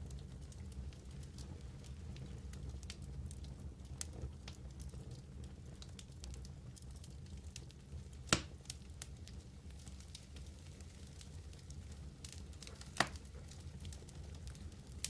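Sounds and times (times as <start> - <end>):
wood fire crackling: 0.0 - 15.0
loud sharp pop from fire: 8.2 - 8.6, 12.6 - 13.3.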